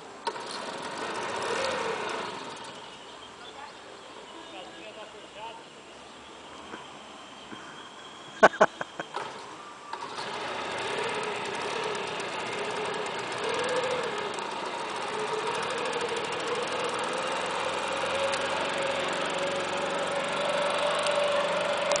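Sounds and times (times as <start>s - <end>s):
boat engine running: 0.2s - 3.6s, 9.9s - 22.0s.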